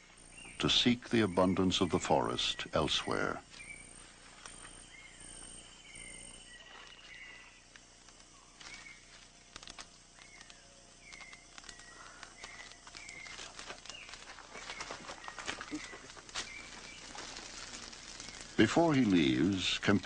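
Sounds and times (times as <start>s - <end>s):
insect pulsing trill: 0.0s - 20.0s
sharp clicks: 9.5s - 14.1s.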